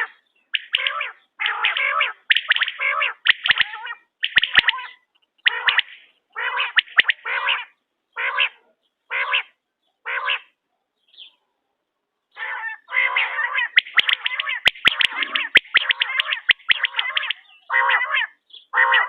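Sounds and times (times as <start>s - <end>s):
quail calling: 0.0s - 10.6s, 12.3s - 19.0s
sharp clicks: 2.3s - 6.0s, 13.8s - 17.4s.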